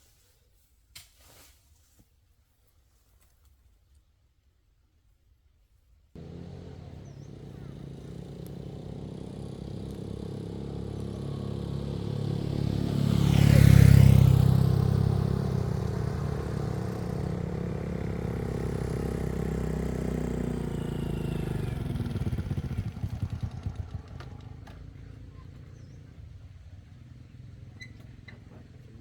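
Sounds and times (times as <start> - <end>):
vehicle engine running: 6.2 - 29.0.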